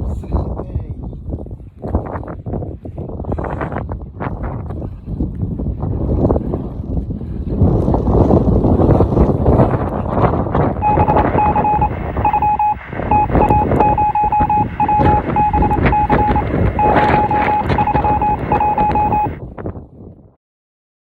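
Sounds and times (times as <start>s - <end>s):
wind buffeting microphone: 0.0s - 20.2s
high electronic beeping: 10.8s - 19.4s.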